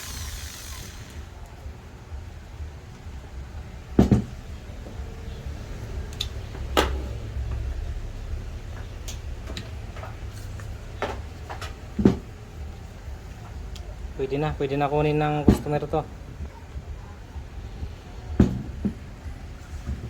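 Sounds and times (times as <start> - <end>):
low steady rumble: 0.0 - 20.0
sharp knocks of hard objects: 4.0 - 5.0.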